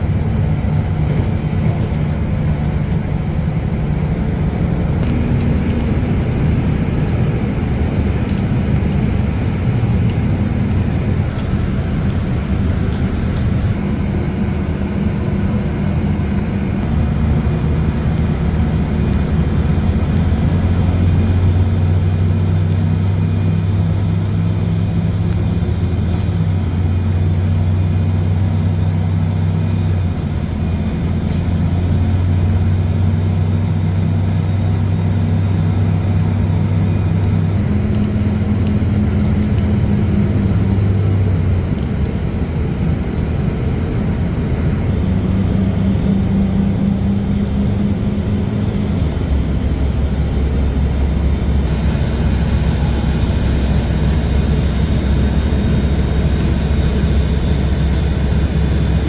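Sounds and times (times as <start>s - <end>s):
rushing noise: 0.0s - 22.1s, 37.6s - 59.0s
train drone: 0.0s - 59.0s.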